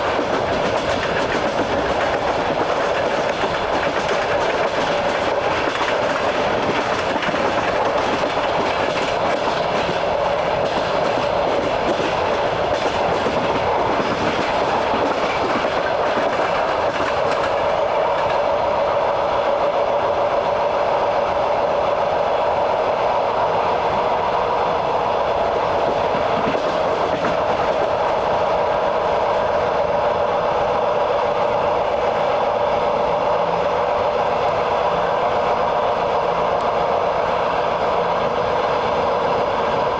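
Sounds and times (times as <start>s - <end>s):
wheels clicking over rail joints: 0.0s - 18.4s, 25.5s - 28.4s
train rolling with hum: 0.0s - 39.9s.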